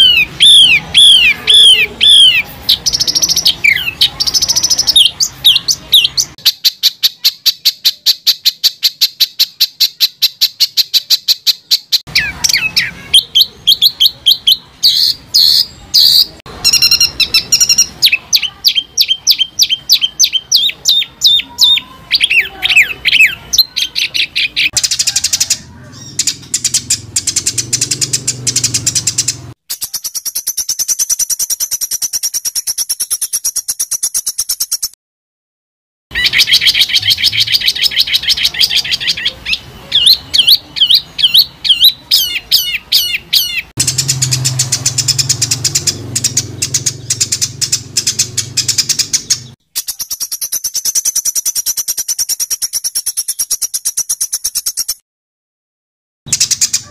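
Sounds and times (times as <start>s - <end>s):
songbird rapid harsh notes: 0.0s - 35.0s, 36.1s - 55.0s, 56.3s - 56.9s.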